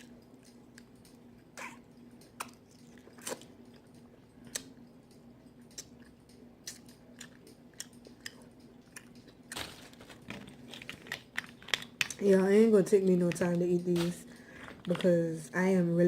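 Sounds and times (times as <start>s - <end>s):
faint steady hum: 0.0s - 16.0s
chewing with wet mouth smacks: 0.4s - 4.8s, 5.6s - 9.6s.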